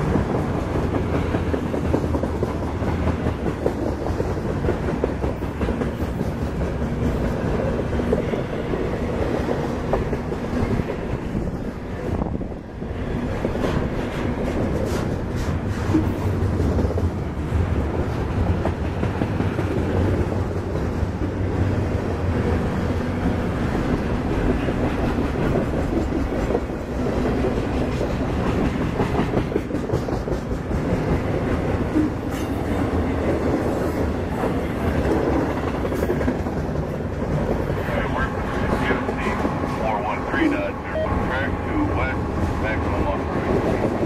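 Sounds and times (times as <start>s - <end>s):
freight train wheels on rails: 0.0s - 44.0s.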